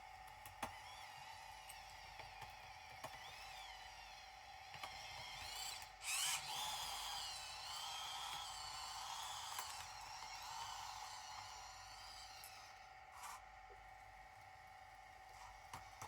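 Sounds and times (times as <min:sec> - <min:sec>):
small electric motors whining: 0:00.6 - 0:13.5.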